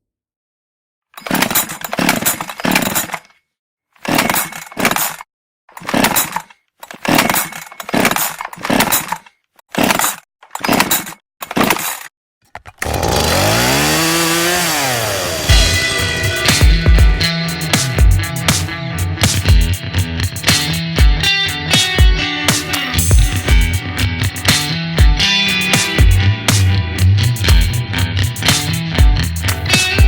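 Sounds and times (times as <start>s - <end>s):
chainsaw cutting wood: 12.8s - 18.0s.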